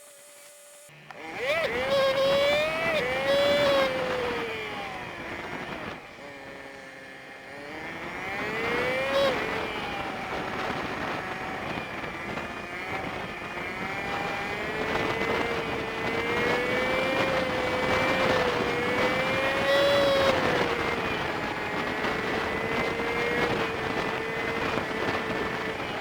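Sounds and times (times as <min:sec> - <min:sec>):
motorbike engine running: 0:00.9 - 0:26.0
road and wind noise: 0:00.9 - 0:26.0.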